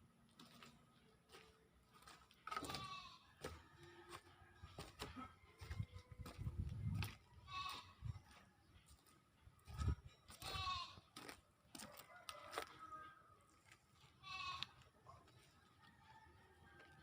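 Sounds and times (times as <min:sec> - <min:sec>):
goat bleating: 0:02.5 - 0:03.4, 0:07.4 - 0:08.0, 0:10.4 - 0:11.1, 0:14.1 - 0:14.9.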